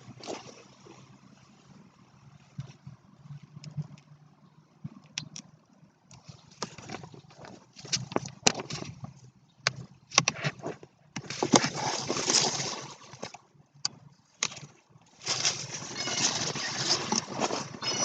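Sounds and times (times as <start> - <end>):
low steady hum: 0.0 - 18.0
rustling: 10.2 - 13.4, 15.1 - 18.0.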